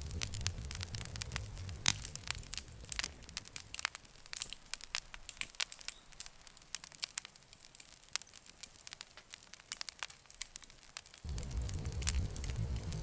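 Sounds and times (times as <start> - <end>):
low rumble: 0.0 - 3.6, 11.2 - 13.0
campfire crackling and popping: 0.0 - 13.0.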